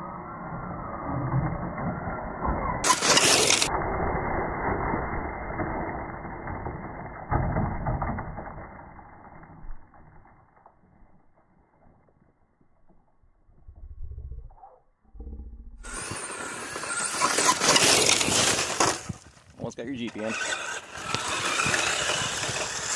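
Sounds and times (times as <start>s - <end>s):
toy truck electric motor whining: 0.2s - 8.4s, 15.8s - 19.2s, 20.1s - 22.9s.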